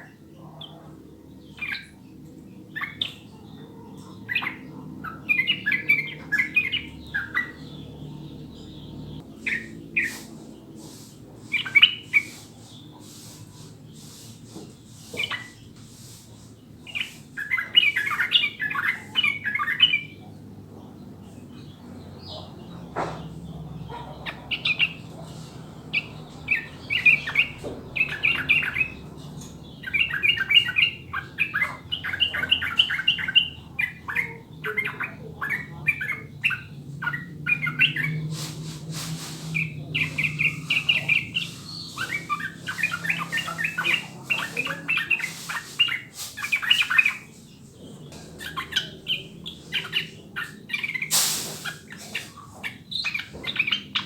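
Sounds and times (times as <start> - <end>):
bulbul chattering song: 0.0 - 54.0.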